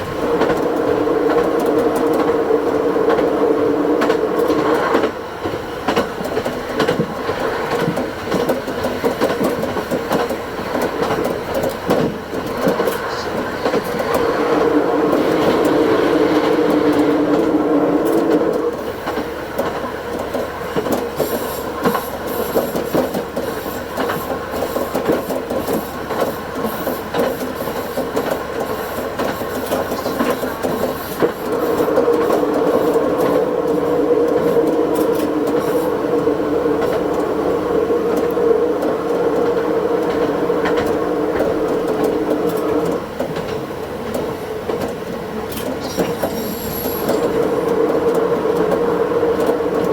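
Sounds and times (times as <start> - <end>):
diesel railcar engine drone: 0.0 - 49.9
wheels clicking over rail joints: 4.0 - 15.8, 16.5 - 37.4.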